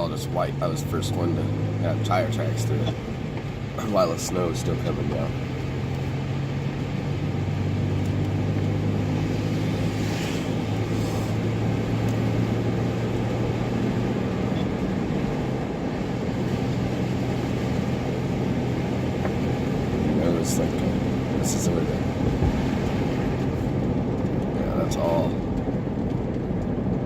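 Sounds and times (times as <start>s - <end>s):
car engine and road drone: 0.0s - 27.0s.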